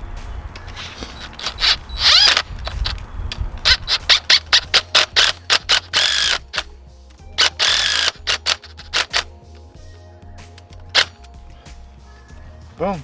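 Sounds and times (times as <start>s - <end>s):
short squeaks: 0.6s - 3.0s
sharp metallic clicks: 0.6s - 9.6s, 10.5s - 11.4s.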